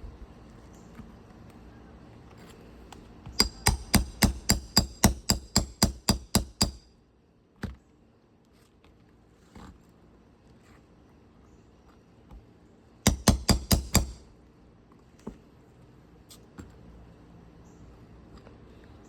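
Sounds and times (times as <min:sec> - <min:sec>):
hammer striking metal tool: 0:03.4 - 0:06.8.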